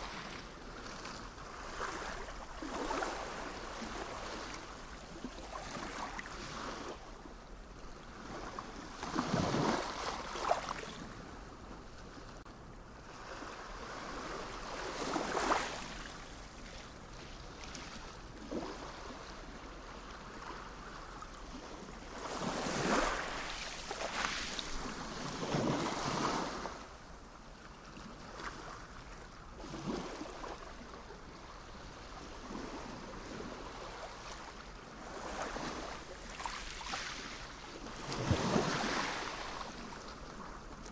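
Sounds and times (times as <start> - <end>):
sea waves washing onto shore: 22.2 - 26.7, 32.6 - 40.9.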